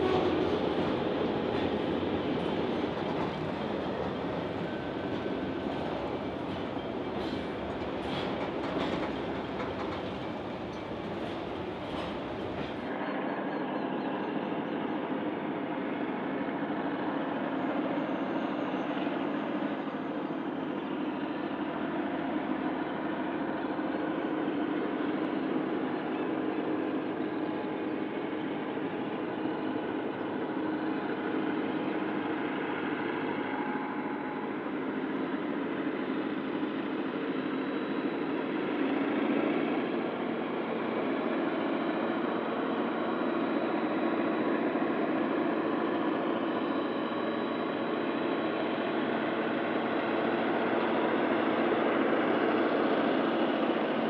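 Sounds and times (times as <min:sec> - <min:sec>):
train wheels clattering on rails: 0:00.0 - 0:13.2
distant locomotive drone: 0:00.0 - 0:54.0.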